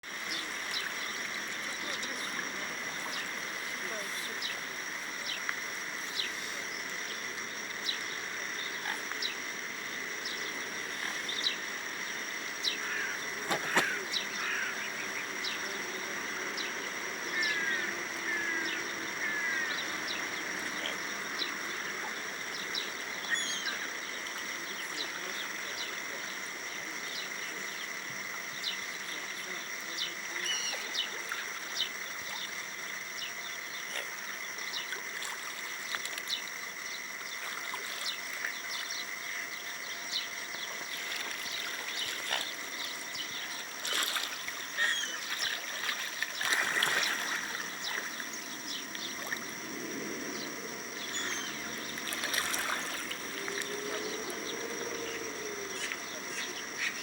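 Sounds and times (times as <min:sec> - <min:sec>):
water splashing: 0:00.0 - 0:15.4, 0:33.8 - 0:57.0.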